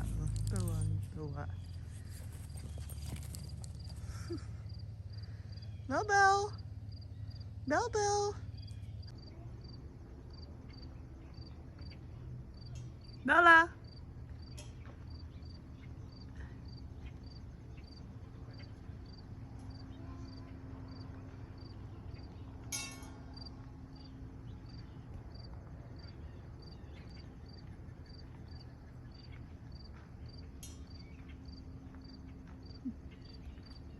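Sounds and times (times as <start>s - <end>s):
crickets chirping: 0.0s - 33.9s
low steady rumble: 0.0s - 33.9s.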